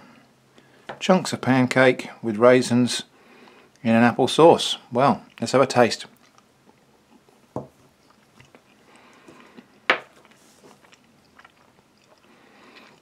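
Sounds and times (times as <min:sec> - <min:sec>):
person chewing: 0:06.1 - 0:13.0.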